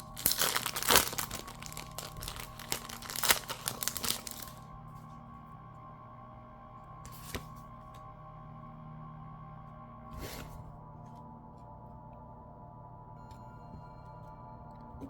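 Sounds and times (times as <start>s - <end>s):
plastic wrapper crinkling and tearing: 0.0s - 4.6s.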